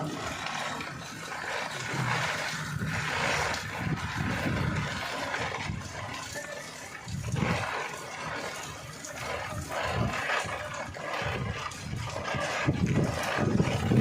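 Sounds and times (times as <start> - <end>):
low rumbling surges: 0.0 - 14.0
rain pouring: 0.0 - 14.0.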